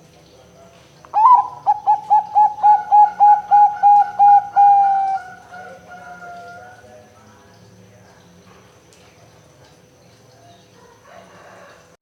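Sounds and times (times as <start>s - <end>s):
dove cooing: 1.2s - 6.9s.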